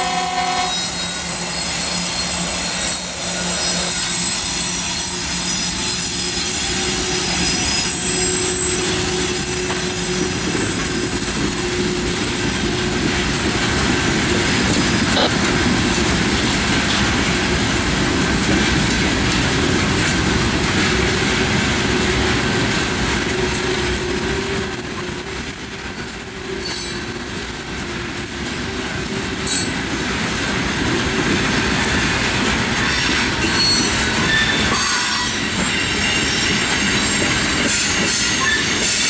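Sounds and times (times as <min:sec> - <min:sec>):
wheel squeal: 0:00.0 - 0:13.4, 0:32.8 - 0:39.0
train wheels rumbling on rail: 0:00.0 - 0:39.0.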